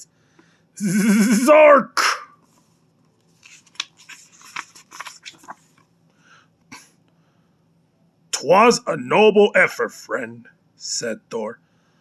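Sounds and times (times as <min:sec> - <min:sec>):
paper page rustling and crinkling: 0:03.2 - 0:05.8.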